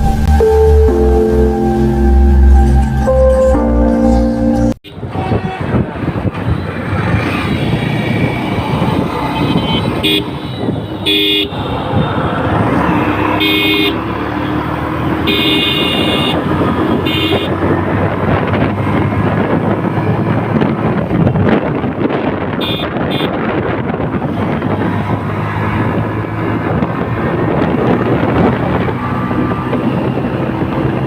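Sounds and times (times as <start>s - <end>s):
wind and road noise: 0.0s - 31.0s
vehicle horn honking: 4.9s - 5.8s, 9.4s - 11.7s, 13.3s - 14.6s, 15.2s - 17.6s, 22.6s - 23.4s
motorcycle engine: 6.4s - 31.0s.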